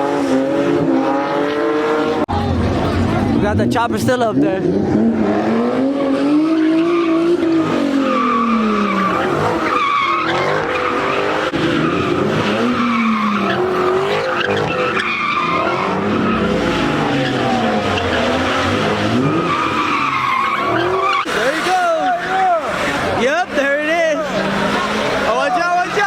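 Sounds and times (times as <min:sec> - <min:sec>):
car engine revving: 0:00.0 - 0:26.0
tyres squealing: 0:06.5 - 0:26.0.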